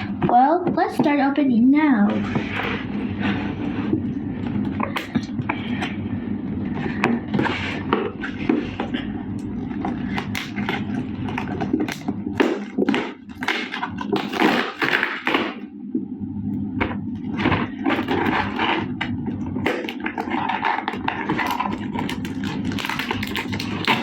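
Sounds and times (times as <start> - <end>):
steady low hum: 0.0 - 24.0
hands handling packaging: 17.2 - 24.0.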